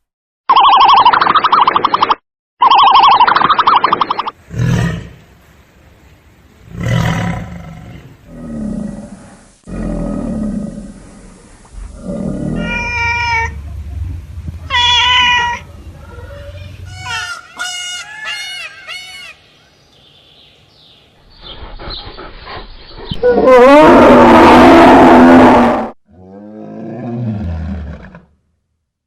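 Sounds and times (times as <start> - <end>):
animal growling roars: 4.5 - 5.2, 6.6 - 14.5, 23.2 - 28.3
high-pitched animal calls: 12.5 - 13.6, 14.7 - 19.4.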